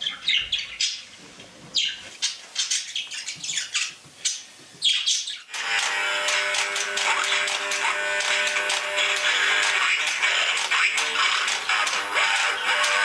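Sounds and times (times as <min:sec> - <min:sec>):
music: 0:05.5 - 0:13.0.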